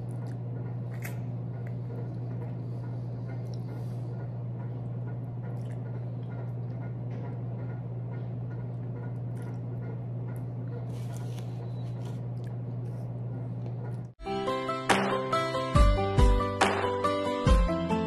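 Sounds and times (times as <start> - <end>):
steady low hum: 0.0 - 14.2
chewing and sucking mouth sounds: 10.4 - 14.1.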